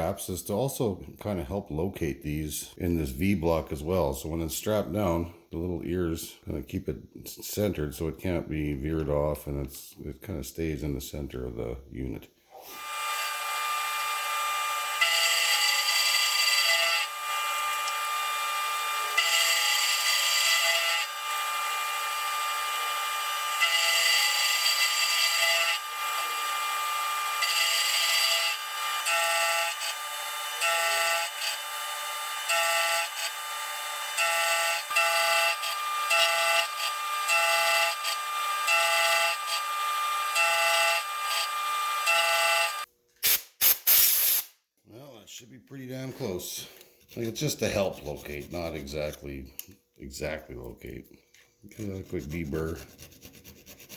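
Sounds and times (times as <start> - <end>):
machine tool cutting steel: 14.9 - 44.5.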